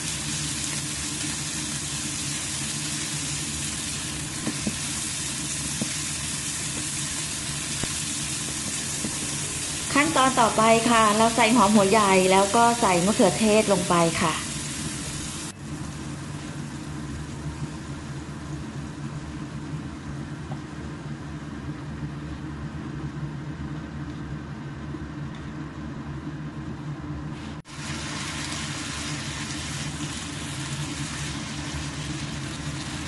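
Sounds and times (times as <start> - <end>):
food sizzling in a frying pan: 0.0 - 18.6, 27.7 - 33.0
steady low hum: 0.0 - 33.0.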